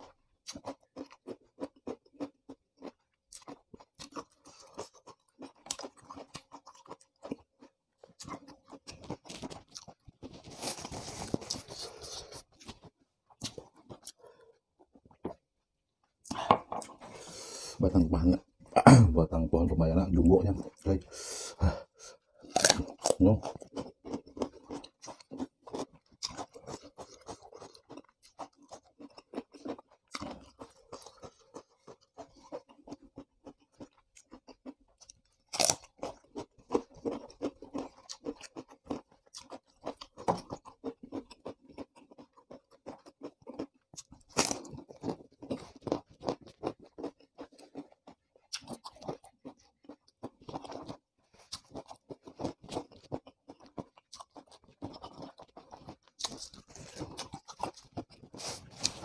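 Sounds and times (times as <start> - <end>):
person chewing with wet crunching: 0.0 - 18.8, 19.4 - 59.0.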